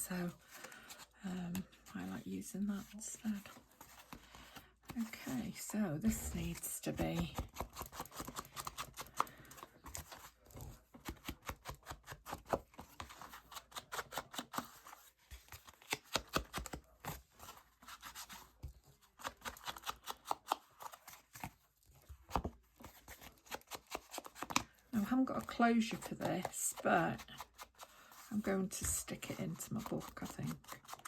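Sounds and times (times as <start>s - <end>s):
scissors cutting paper: 4.9s - 18.4s, 19.0s - 21.5s, 22.4s - 31.0s.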